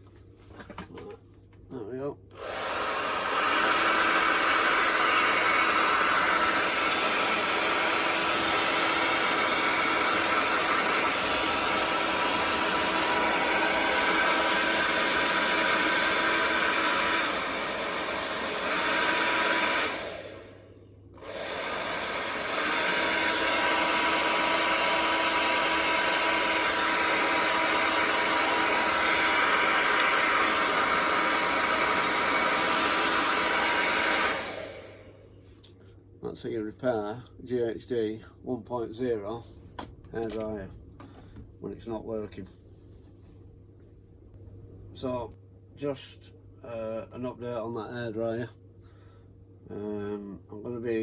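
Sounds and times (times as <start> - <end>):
hairdryer blowing: 2.3 - 35.4.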